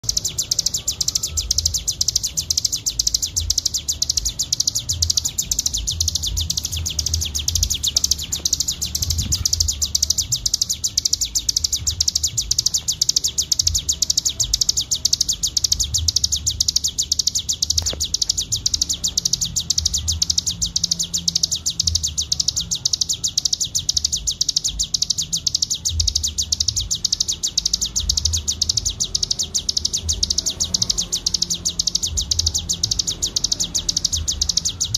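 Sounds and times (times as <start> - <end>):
bird singing rapid high trill: 0.0 - 34.9
low thumps: 4.9 - 14.7.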